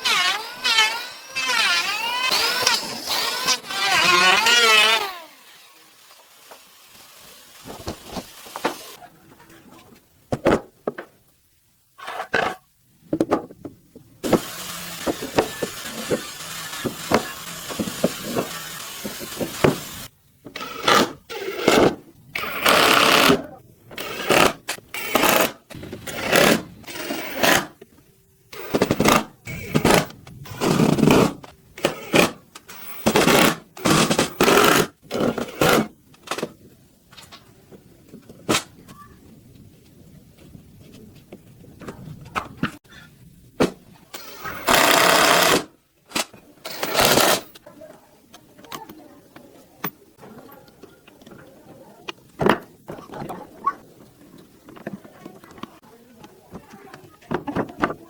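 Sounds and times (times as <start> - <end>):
small power tool running: 0.0 - 9.0, 14.2 - 20.9, 44.2 - 45.6.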